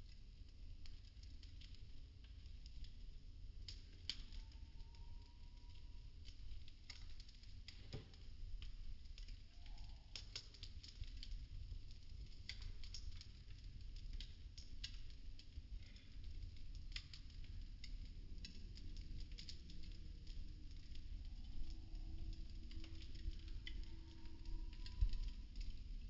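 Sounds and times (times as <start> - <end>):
wood fire crackling: 0.0 - 26.0
sharp snaps and pops: 3.6 - 25.9
steady low rumble: 15.1 - 26.0.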